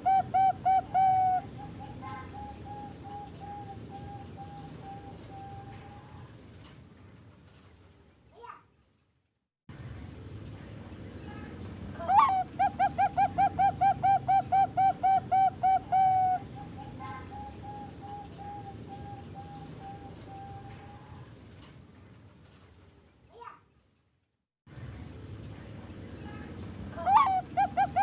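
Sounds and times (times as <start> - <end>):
dove cooing: 0.0 - 6.2, 12.0 - 21.2, 27.0 - 28.0.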